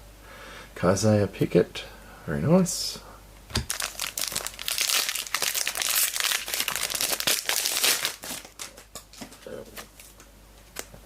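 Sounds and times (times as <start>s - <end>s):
plastic wrapper crinkling: 3.6s - 10.2s.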